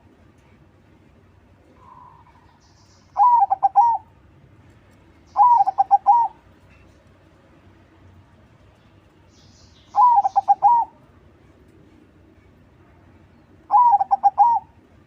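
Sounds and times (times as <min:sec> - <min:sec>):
dove cooing: 0:03.2 - 0:04.1, 0:05.4 - 0:06.4, 0:10.0 - 0:11.0, 0:13.7 - 0:14.8.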